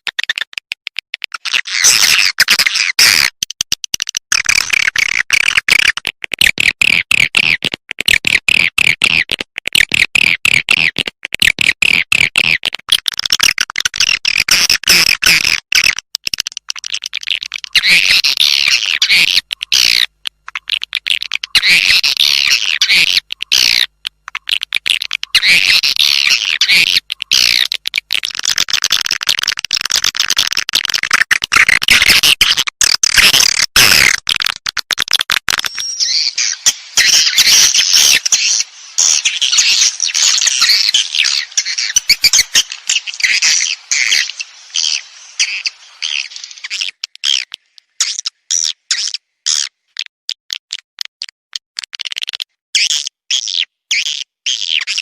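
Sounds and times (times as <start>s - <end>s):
bird twittering chirps playback: 16.6s - 27.8s, 35.5s - 49.7s.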